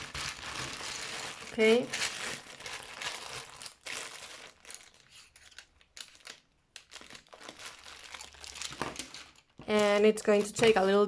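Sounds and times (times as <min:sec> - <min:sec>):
paper and card rustling: 0:04.7 - 0:11.0.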